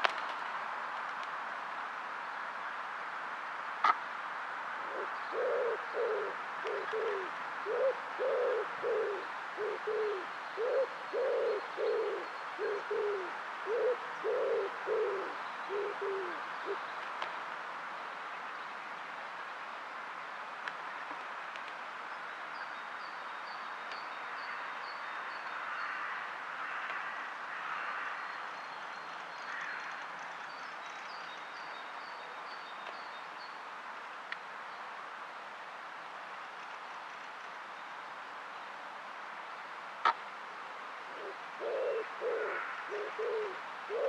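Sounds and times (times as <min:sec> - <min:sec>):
pigeon cooing: 0:04.9 - 0:16.8, 0:41.1 - 0:44.0.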